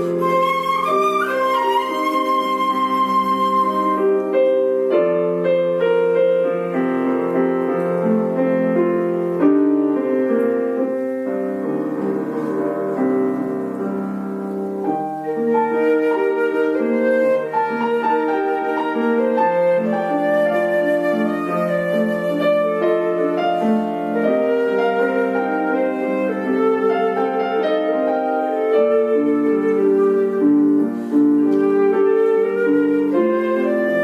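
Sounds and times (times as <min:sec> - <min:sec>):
flute with vibrato: 0:00.0 - 0:04.6, 0:15.3 - 0:34.0
piano chords: 0:00.0 - 0:34.0.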